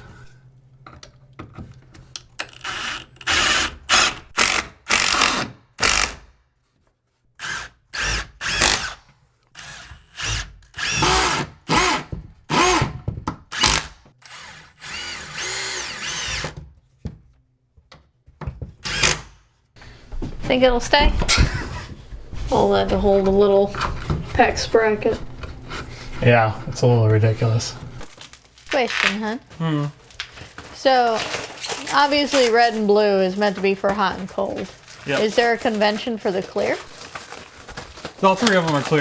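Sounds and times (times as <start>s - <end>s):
power drill driving screw into wood: 2.4s - 6.3s, 7.4s - 16.6s, 18.8s - 19.4s.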